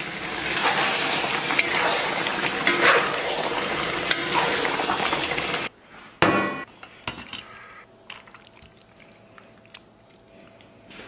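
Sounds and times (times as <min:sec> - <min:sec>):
food sizzling in a pot: 0:00.0 - 0:05.7
dish set down clinking: 0:06.2 - 0:07.5
tableware taps and clinks: 0:06.2 - 0:07.5.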